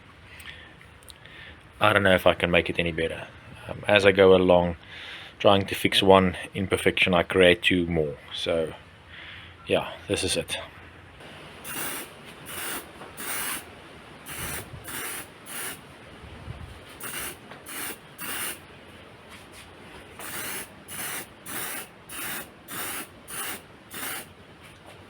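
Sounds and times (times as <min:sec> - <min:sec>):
spray paint can hissing: 0:11.6 - 0:13.7, 0:14.3 - 0:15.8, 0:17.0 - 0:18.6, 0:20.2 - 0:24.3.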